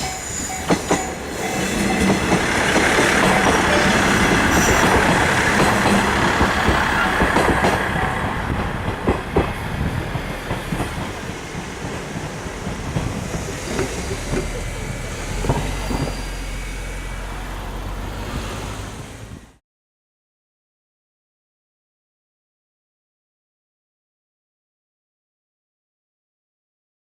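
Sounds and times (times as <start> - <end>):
level crossing warning bell: 0.0 - 7.2
train wheels clattering over rail joints: 0.0 - 16.7.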